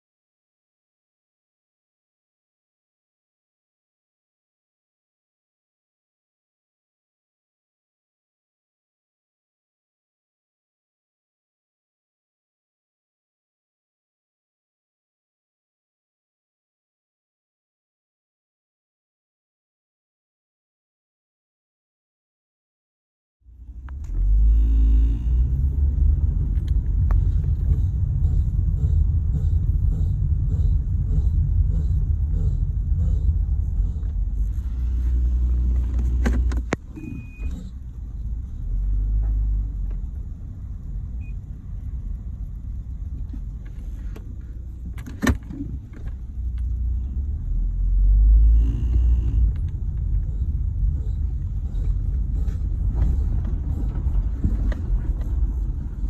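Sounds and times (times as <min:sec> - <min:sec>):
tyre and road rumble: 0:23.6 - 0:56.0.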